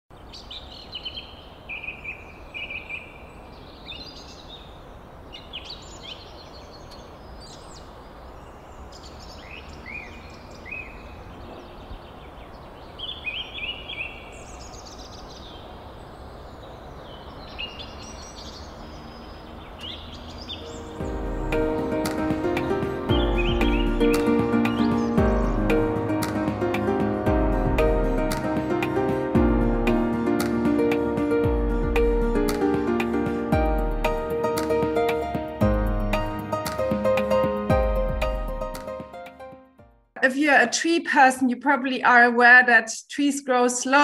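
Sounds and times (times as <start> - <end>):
birds chirping and whistling: 0.2 - 27.2.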